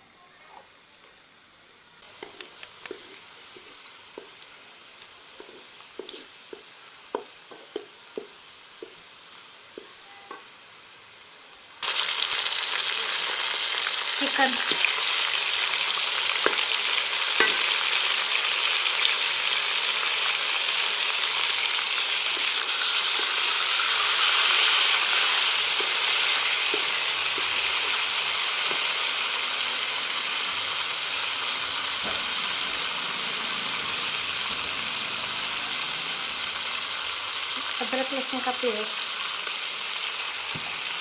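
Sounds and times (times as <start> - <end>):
chicken frying in hot oil: 11.4 - 41.0.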